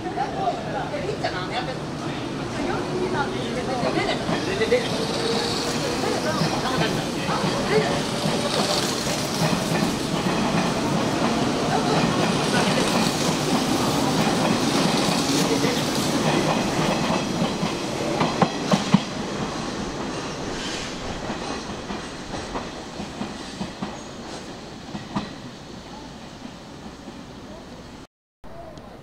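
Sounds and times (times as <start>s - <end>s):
train wheels clacking over rail joints: 3.9s - 25.4s.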